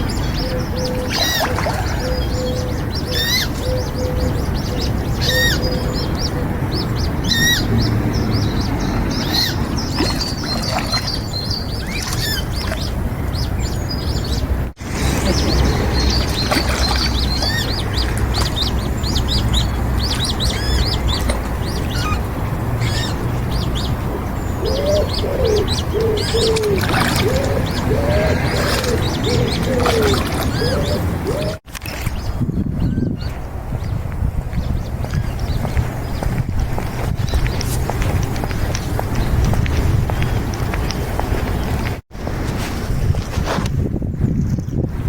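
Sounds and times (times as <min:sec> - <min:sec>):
songbirds chirping and twittering: 0:00.0 - 0:43.3
dove cooing: 0:00.3 - 0:07.6, 0:22.8 - 0:31.6.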